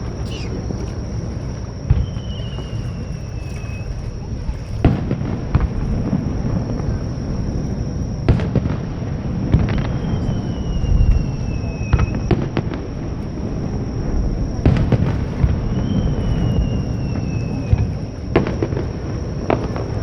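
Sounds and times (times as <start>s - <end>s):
whistling firework shell: 0.0s - 5.8s, 9.5s - 12.9s, 14.6s - 20.0s
low rumble of booms: 0.0s - 20.0s.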